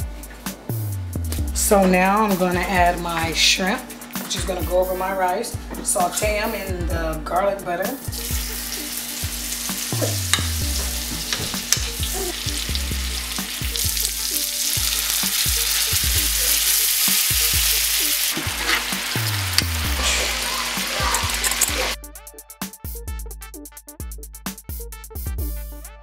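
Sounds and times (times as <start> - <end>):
shrimp sizzling in a frying pan: 8.1 - 22.0.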